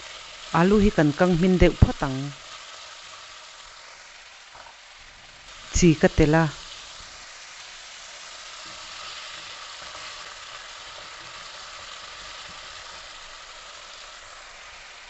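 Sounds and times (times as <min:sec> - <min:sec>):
potatoes sizzling in hot oil: 0:00.0 - 0:15.0
spatula stirring in a pan: 0:06.6 - 0:15.0.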